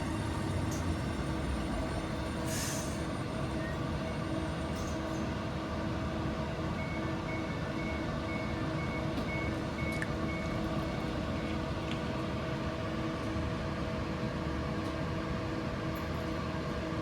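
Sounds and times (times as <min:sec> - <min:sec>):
train equipment humming: 0:00.0 - 0:04.4.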